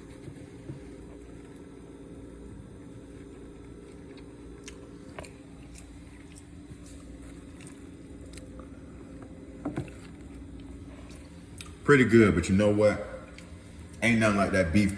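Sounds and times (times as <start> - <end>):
person chewing crunchy food: 0.0 - 11.8.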